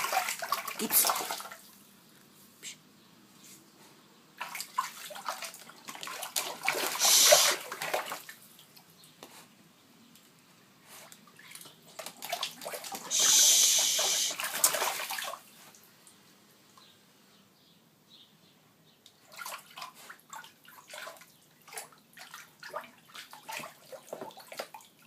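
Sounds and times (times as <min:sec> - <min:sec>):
water splashing and sloshing: 0:00.0 - 0:01.8, 0:04.4 - 0:09.5, 0:10.8 - 0:16.2, 0:19.2 - 0:25.0.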